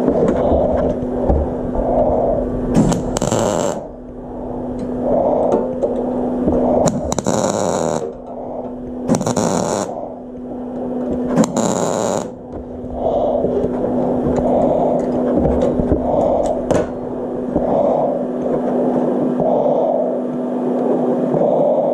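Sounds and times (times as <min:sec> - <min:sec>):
steady low hum: 0:00.0 - 0:21.9
welding arc crackling: 0:00.8 - 0:18.6
breaths through a respirator: 0:12.6 - 0:20.4.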